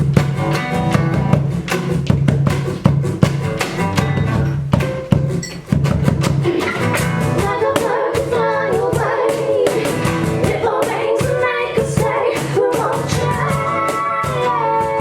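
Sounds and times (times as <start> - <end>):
drum beat: 0.0 - 15.0
guitar: 0.0 - 15.0
woman singing: 6.4 - 15.0.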